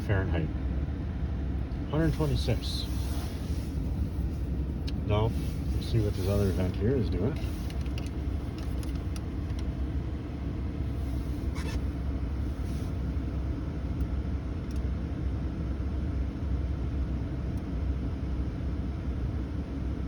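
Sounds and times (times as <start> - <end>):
blower pushing air from vents: 0.0 - 14.5
car engine idling: 0.0 - 15.9.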